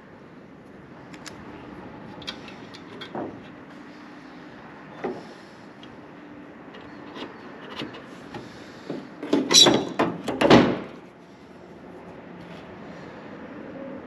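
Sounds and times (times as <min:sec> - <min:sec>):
metal parts clanking and rattling: 0:09.2 - 0:10.6.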